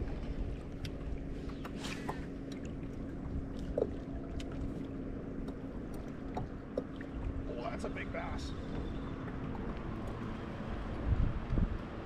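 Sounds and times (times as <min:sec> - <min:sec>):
wind noise on microphone: 0:10.9 - 0:12.0.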